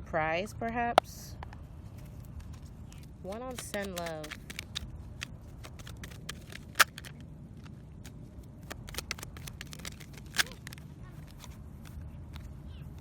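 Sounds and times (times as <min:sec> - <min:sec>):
low steady rumble: 0:00.0 - 0:13.0
cards clicking and tapping: 0:02.4 - 0:13.0
card snaps: 0:03.5 - 0:07.2, 0:08.6 - 0:12.0.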